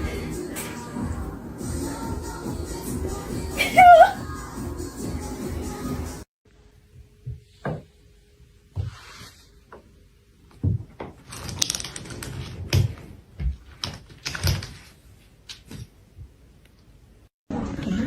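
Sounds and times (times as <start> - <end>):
irregular knocks and thumps: 10.5 - 11.2.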